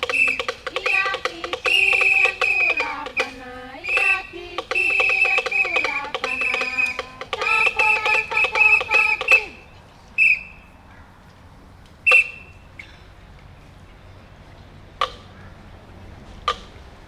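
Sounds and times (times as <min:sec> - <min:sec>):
short high whistled blips: 0:00.0 - 0:09.6, 0:10.2 - 0:10.6, 0:12.0 - 0:12.9
shrill warbling whistle tones: 0:00.0 - 0:10.6, 0:12.0 - 0:12.9.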